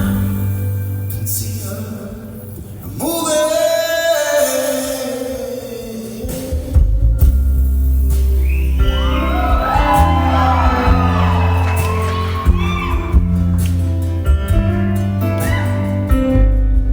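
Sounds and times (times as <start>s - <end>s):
live band chord with heavy bass: 0.0s - 2.8s, 6.2s - 16.9s
crowd cheering and whooping: 8.4s - 14.2s, 15.2s - 16.2s.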